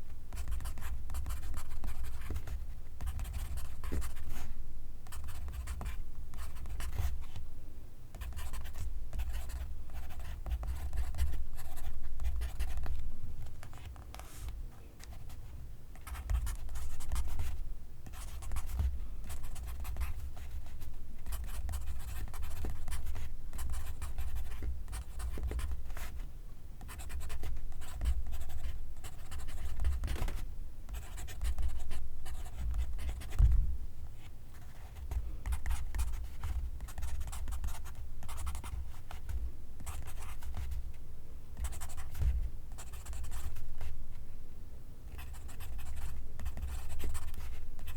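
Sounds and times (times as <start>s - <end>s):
pencil writing on paper: 0.3s - 4.4s, 18.1s - 26.1s, 26.8s - 30.2s, 30.9s - 33.4s, 35.4s - 40.7s, 41.6s - 43.9s, 45.2s - 47.9s.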